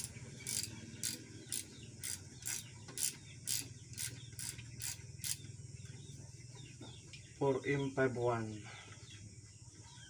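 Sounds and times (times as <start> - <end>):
ratchet wrench clicking: 0.0 - 5.4.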